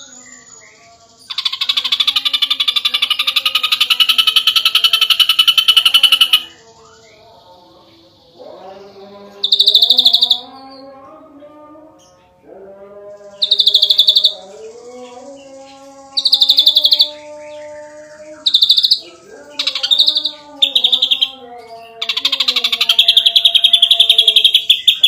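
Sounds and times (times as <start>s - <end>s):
drawn-out lower bird tone: 0.0s - 25.0s
bird song pulsed high bursts: 9.4s - 10.8s, 13.2s - 25.0s.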